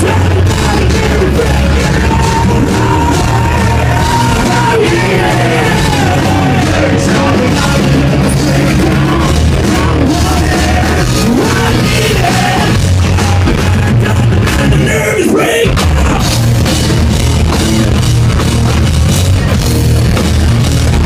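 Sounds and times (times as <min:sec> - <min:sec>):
person singing and yelling: 0:00.0 - 0:16.4
hard rock band playing: 0:00.0 - 0:21.0.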